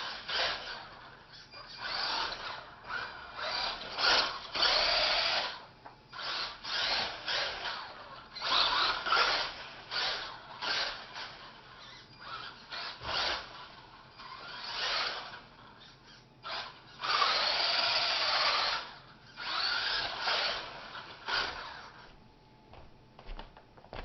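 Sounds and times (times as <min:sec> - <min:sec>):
rc truck motor whirring: 0:00.0 - 0:22.1.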